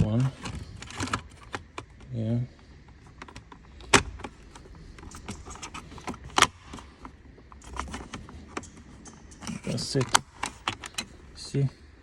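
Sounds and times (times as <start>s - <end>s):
plastic trim rattling: 0.0s - 11.5s
plastic trim clicks: 3.1s - 11.2s.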